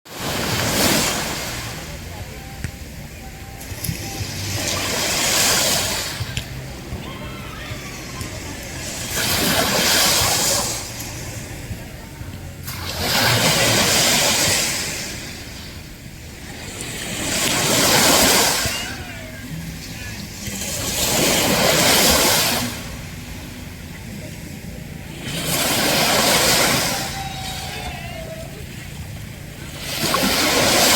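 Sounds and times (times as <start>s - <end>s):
ocean waves washing in: 0.1s - 30.9s
steady low rumble: 0.4s - 30.9s.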